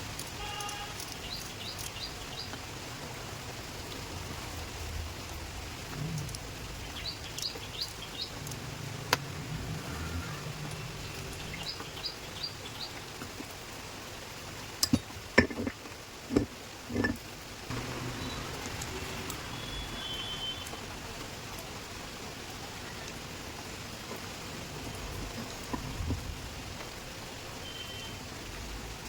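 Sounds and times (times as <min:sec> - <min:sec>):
background noise: 0:00.0 - 0:29.0
bird chirping: 0:06.8 - 0:08.6, 0:09.8 - 0:13.2.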